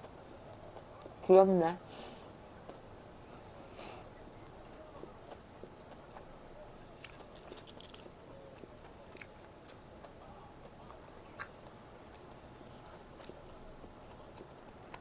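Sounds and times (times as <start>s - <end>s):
quiet chewing: 0.0s - 1.2s, 1.8s - 15.0s
crunching fried food: 4.5s - 15.0s.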